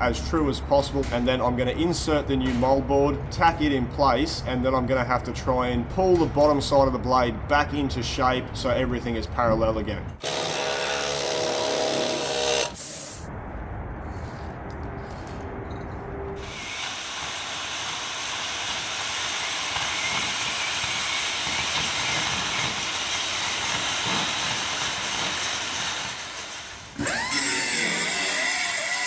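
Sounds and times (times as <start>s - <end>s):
cutting torch hissing: 16.4s - 29.0s.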